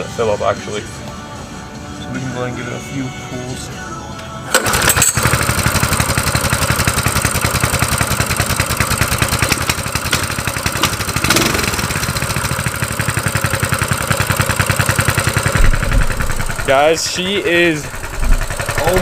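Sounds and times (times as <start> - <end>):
small engine running: 4.5 - 19.0.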